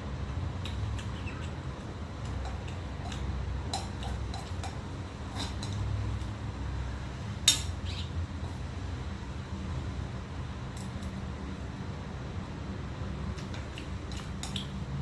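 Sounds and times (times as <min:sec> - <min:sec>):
steady low hum: 0:00.0 - 0:15.0
utensils clinking against dishes: 0:02.2 - 0:05.9.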